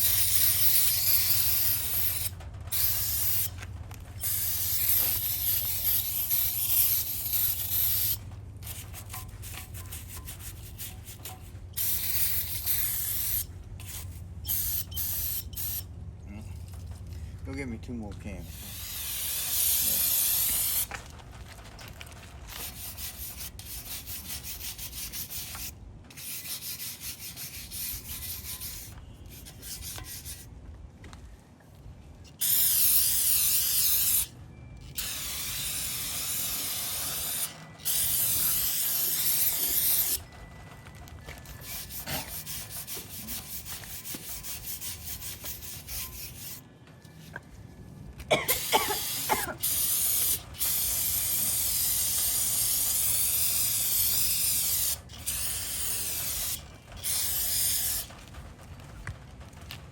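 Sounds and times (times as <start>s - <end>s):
aerosol spray hissing: 0.0s - 3.6s, 4.2s - 9.1s, 11.8s - 15.8s, 18.5s - 20.9s, 32.4s - 34.3s, 35.0s - 40.2s, 48.6s - 58.1s
scrubbing on metal: 0.0s - 15.6s, 21.9s - 30.5s, 32.3s - 40.3s, 41.4s - 46.6s, 48.3s - 58.1s.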